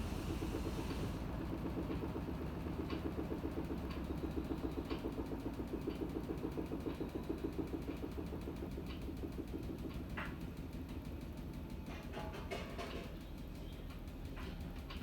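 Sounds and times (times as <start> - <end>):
washing machine pulsing hum: 0.0 - 11.9.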